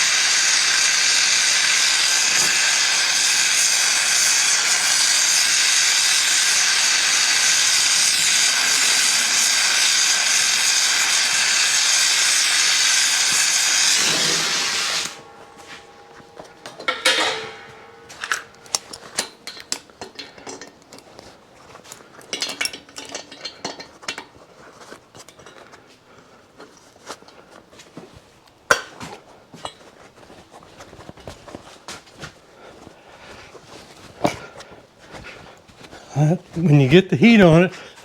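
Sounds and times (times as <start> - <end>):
gas torch hissing: 0.0 - 19.7
tools clinking on metal: 15.1 - 21.1, 22.2 - 24.3.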